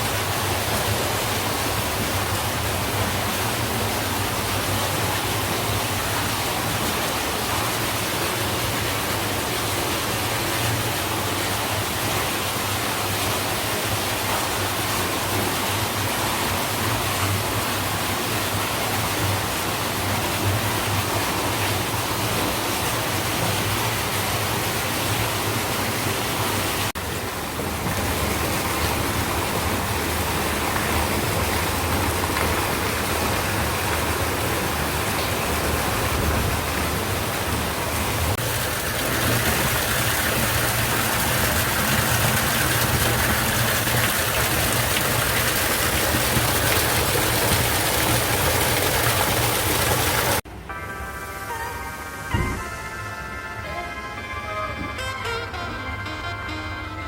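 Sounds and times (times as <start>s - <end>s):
water pouring into bath: 38.3s - 50.4s.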